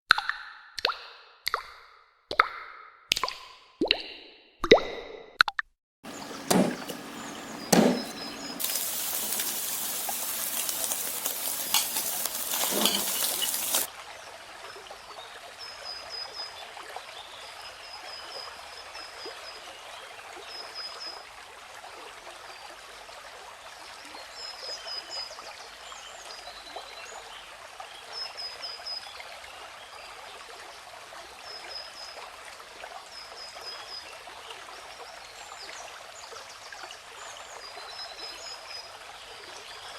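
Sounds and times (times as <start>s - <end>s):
water running loudly: 6.1s - 13.9s
water trickling: 6.1s - 14.5s
knocks: 6.4s - 7.1s, 7.7s - 8.4s.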